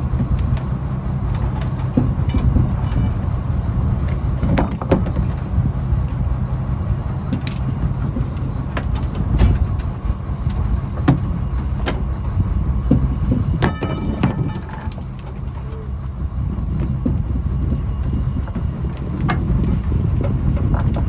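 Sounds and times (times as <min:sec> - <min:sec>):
boat engine rumbling: 0:00.0 - 0:21.0
sharp knocks and clanks: 0:04.1 - 0:05.4, 0:11.0 - 0:12.0, 0:12.9 - 0:15.7.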